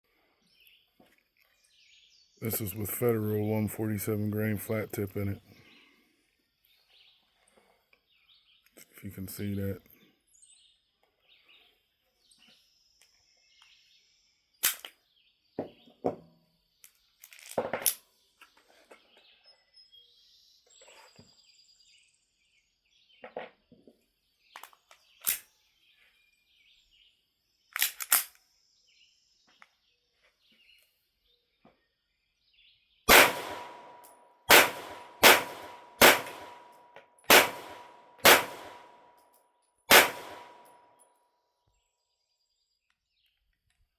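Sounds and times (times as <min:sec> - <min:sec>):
pistol shots: 0:33.1 - 0:39.0, 0:39.9 - 0:40.7.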